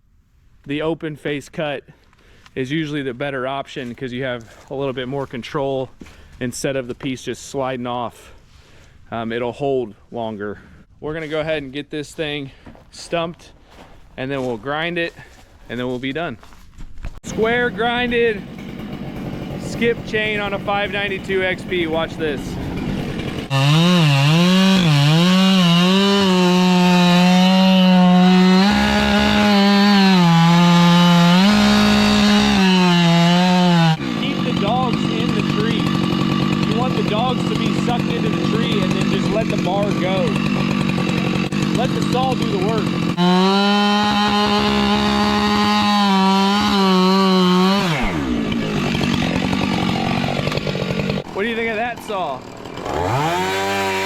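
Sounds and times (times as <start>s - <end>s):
chainsaw cutting at full throttle: 17.3s - 54.0s
chainsaw idling: 17.3s - 54.0s.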